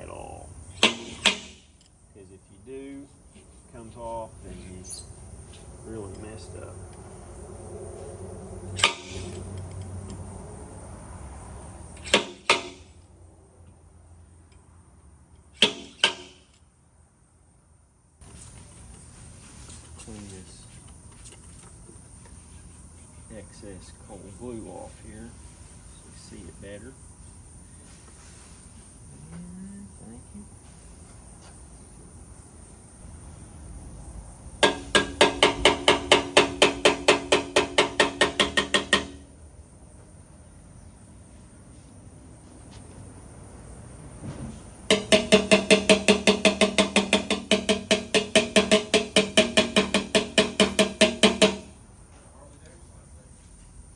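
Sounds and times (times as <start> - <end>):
metallic taps on motorcycle fender: 34.6 - 39.2, 44.9 - 51.8.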